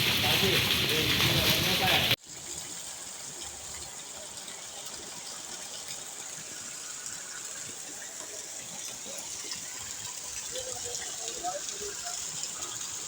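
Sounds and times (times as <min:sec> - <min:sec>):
heavy rain: 0:00.0 - 0:02.2, 0:10.3 - 0:13.0
running rainwater: 0:00.0 - 0:13.0.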